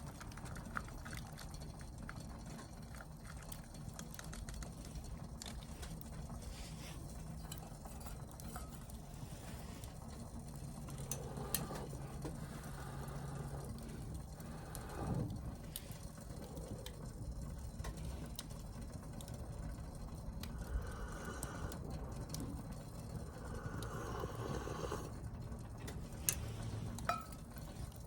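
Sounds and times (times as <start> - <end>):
campfire crackling and popping: 0.0 - 28.0
low steady hum: 0.0 - 28.0.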